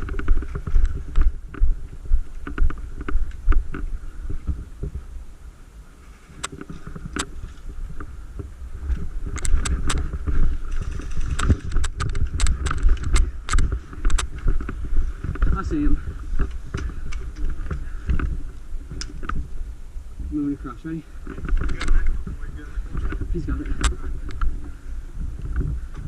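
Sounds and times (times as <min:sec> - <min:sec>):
wind buffeting microphone: 0:00.0 - 0:26.0
sharp clicks and snaps: 0:09.3 - 0:10.0, 0:11.1 - 0:14.7.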